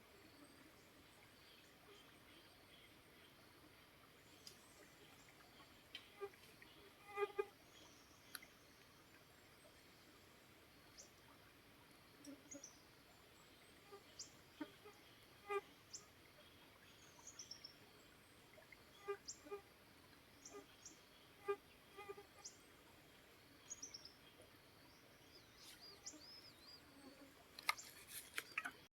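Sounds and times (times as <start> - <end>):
stream flowing: 0.1 - 26.7
birds chirping: 25.3 - 26.9.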